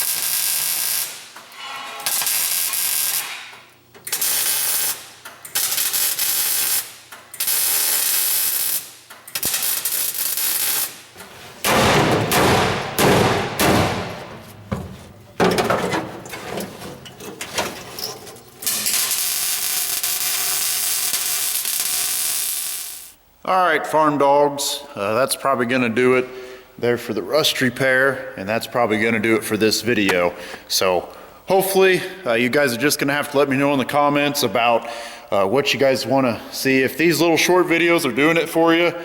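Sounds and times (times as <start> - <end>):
welder crackling hiss: 0.0 - 1.4, 2.0 - 3.4, 4.1 - 11.1, 18.6 - 23.2.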